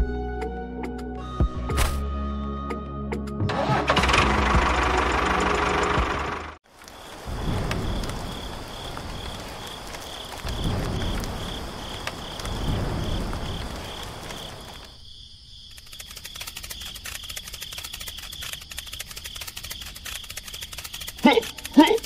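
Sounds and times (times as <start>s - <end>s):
small engine running: 3.5s - 6.6s
fast even ticking: 15.8s - 22.0s.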